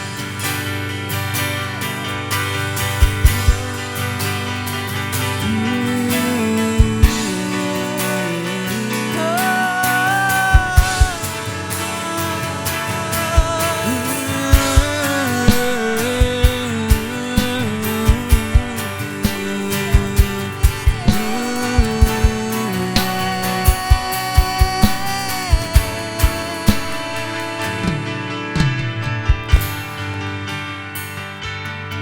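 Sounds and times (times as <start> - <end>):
instrumental worship band music: 0.0 - 32.0
bass drum thumps: 28.6 - 29.9.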